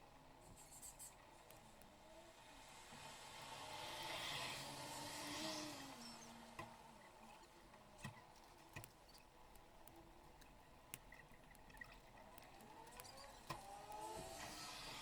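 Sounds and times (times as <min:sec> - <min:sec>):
vehicle passing: 0:02.6 - 0:06.6.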